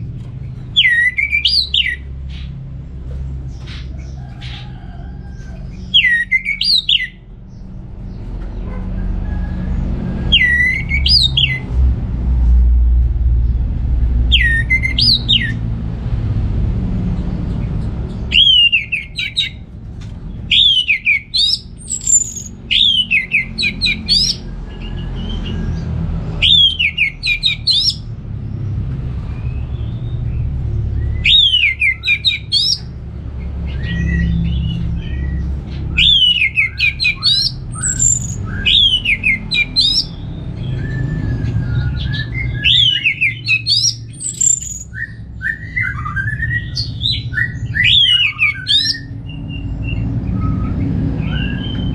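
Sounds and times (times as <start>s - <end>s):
bird singing whistled notes: 0.8s - 2.0s, 5.8s - 7.2s, 10.3s - 11.7s, 14.3s - 15.6s, 18.3s - 19.6s, 20.5s - 25.6s, 26.4s - 28.1s, 29.4s - 32.9s, 33.7s - 51.9s
low rumble: 7.2s - 21.0s
soft bird chirps: 20.3s - 25.8s.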